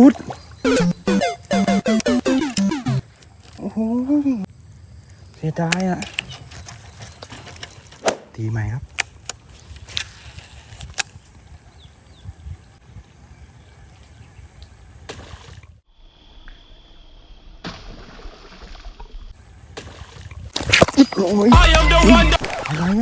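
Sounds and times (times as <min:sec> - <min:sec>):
sharp clicks: 0:00.7 - 0:03.0
water sloshing and splashing: 0:22.4 - 0:23.0.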